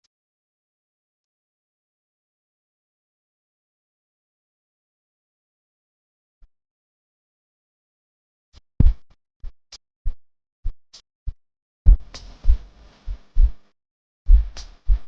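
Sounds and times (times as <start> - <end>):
kick drum hits: 8.8 - 9.0.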